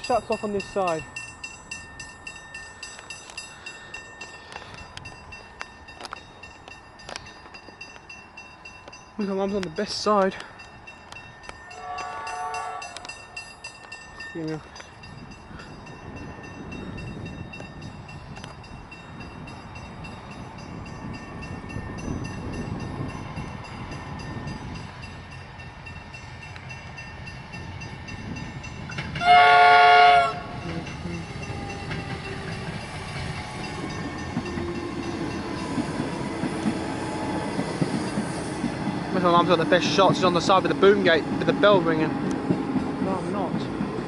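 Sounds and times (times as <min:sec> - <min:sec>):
train wheels rumbling on rails: 0:00.0 - 0:44.0
train horn blast: 0:11.8 - 0:13.1, 0:29.2 - 0:30.8.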